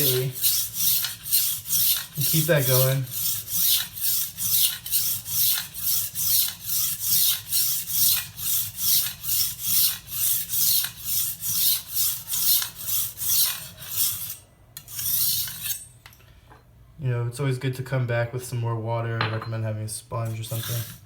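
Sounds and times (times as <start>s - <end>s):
knife rasping on whetstone: 0.0s - 15.9s, 20.3s - 21.0s.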